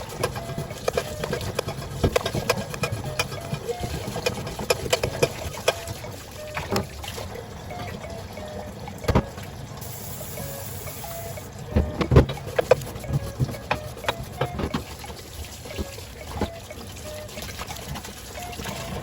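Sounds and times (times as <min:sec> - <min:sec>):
knocks and clinks of hard parts: 0:00.0 - 0:06.9, 0:09.0 - 0:09.5
water running into sink: 0:00.0 - 0:19.0.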